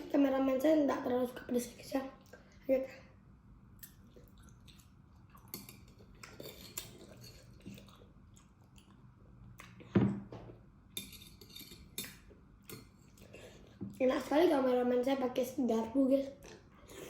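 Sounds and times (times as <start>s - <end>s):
chewing: 3.8s - 9.9s, 11.4s - 13.9s, 16.3s - 17.0s.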